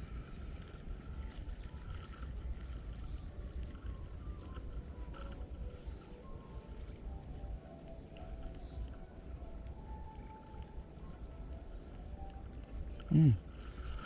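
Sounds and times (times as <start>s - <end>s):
insects trilling: 0.0s - 14.0s
short vocal sound: 13.1s - 13.4s.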